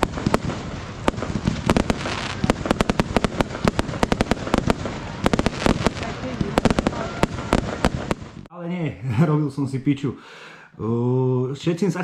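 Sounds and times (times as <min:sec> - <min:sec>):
fireworks bangs and cracks: 0:00.0 - 0:08.5.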